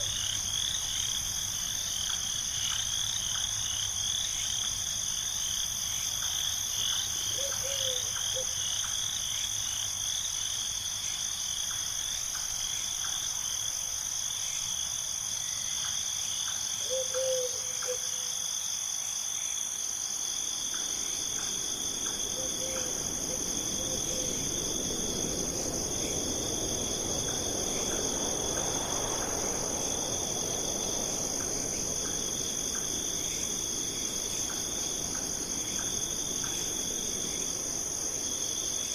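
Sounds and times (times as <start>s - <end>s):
crickets trilling: 0.0s - 38.9s
soft rush of noise: 19.9s - 38.9s.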